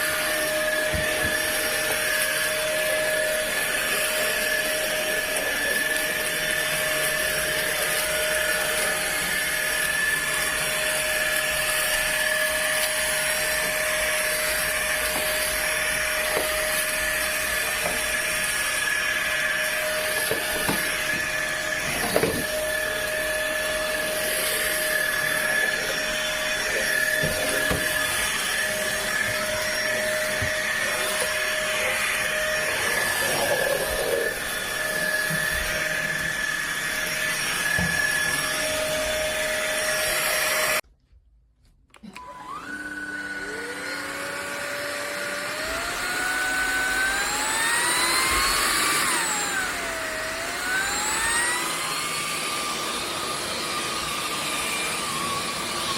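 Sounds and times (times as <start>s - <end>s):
stick vacuum cleaner whining: 0.0s - 40.8s, 41.8s - 55.9s
motor spinning up: 42.0s - 53.0s.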